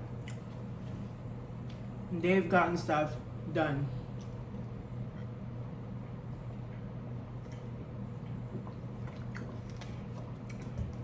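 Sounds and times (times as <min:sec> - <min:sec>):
steady low hum: 0:00.0 - 0:11.0
chewing food: 0:00.2 - 0:01.9, 0:06.3 - 0:11.0.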